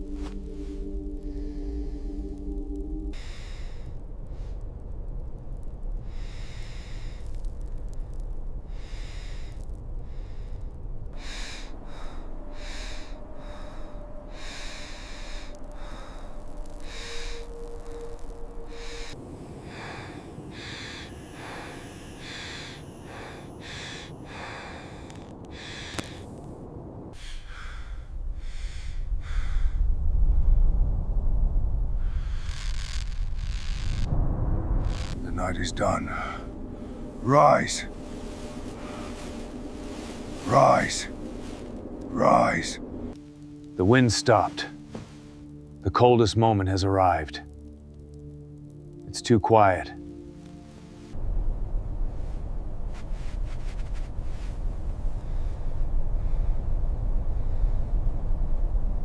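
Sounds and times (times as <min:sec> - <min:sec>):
person breathing heavily: 0:00.0 - 0:04.8, 0:06.0 - 0:26.4, 0:27.1 - 0:30.1, 0:34.9 - 0:43.4
blizzard wind rumble: 0:00.0 - 0:59.0.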